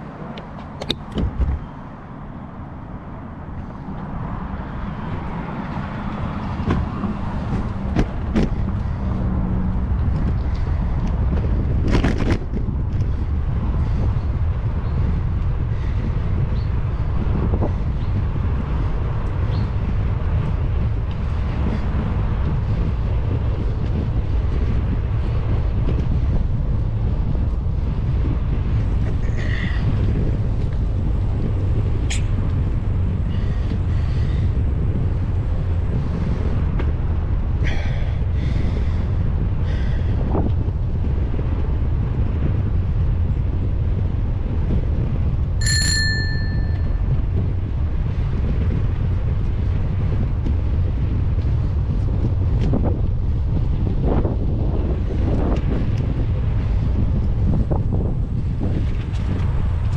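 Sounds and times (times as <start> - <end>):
wind rumble on microphone: 0.0 - 59.9
bicycle bell ring: 45.6 - 47.1.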